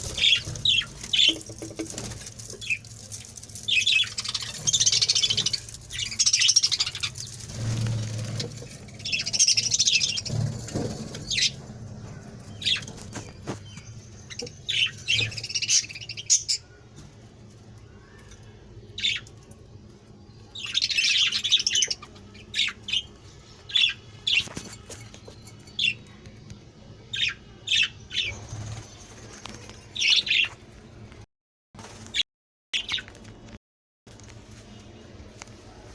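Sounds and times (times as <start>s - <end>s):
budgerigars chirping and squawking: 0.0s - 2.8s, 3.6s - 16.7s, 20.6s - 26.0s, 30.0s - 30.6s.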